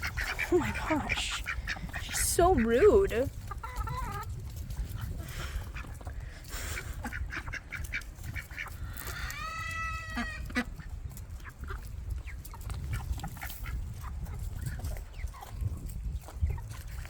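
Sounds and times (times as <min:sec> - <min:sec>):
poultry call: 0:09.0 - 0:10.7.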